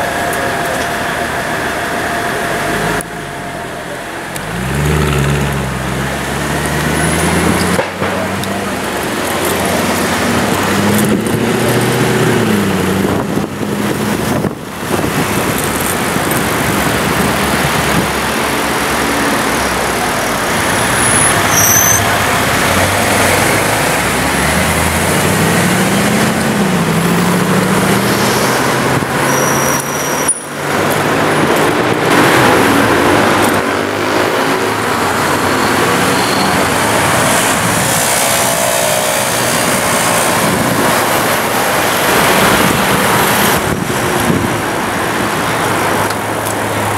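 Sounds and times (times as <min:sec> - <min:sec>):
car exhaust revving: 0:00.0 - 0:46.9
city traffic noise: 0:00.0 - 0:46.9.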